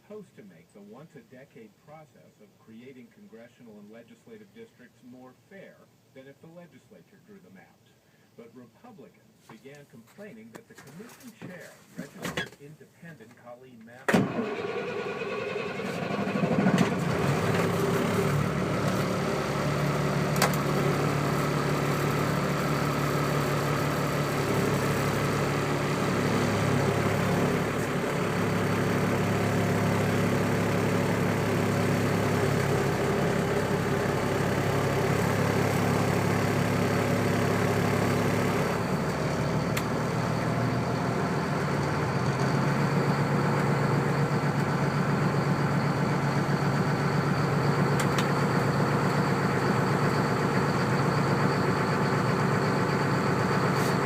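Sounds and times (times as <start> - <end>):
diesel truck engine idling: 14.2 - 54.0.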